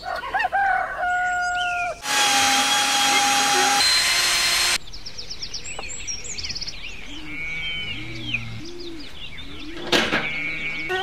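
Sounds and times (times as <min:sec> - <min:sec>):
power drill spinning: 0:02.0 - 0:04.8
low repeated bird calls: 0:04.9 - 0:11.0.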